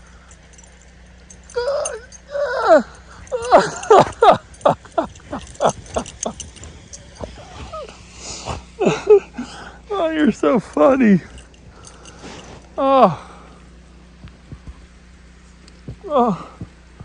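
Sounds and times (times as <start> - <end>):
dog calling and yelping: 1.5 - 8.0.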